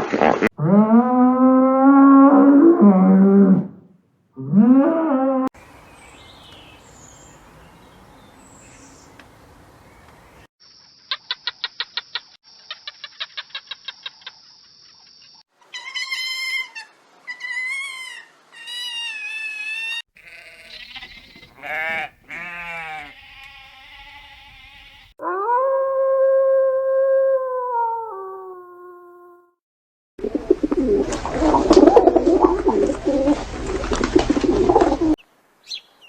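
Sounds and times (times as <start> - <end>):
bleat-like animal calls: 15.7 - 25.2.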